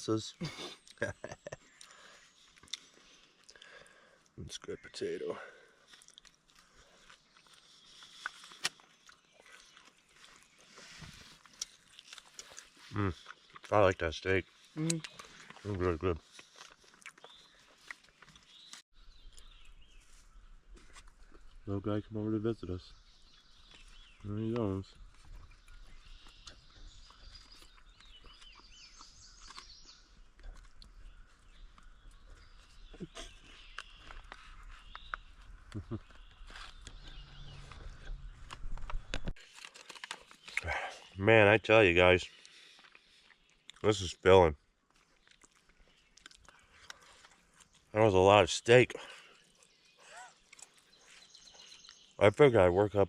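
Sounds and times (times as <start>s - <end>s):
birds singing and chirping: 0.0s - 6.0s, 6.6s - 53.0s
person chewing food: 0.8s - 4.4s, 5.8s - 13.7s, 14.4s - 19.6s, 25.1s - 41.1s, 42.4s - 43.8s, 44.7s - 47.9s, 49.3s - 52.2s.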